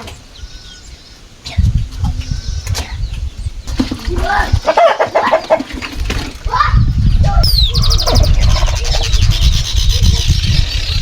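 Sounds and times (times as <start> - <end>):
chickens clucking: 1.4 - 6.3.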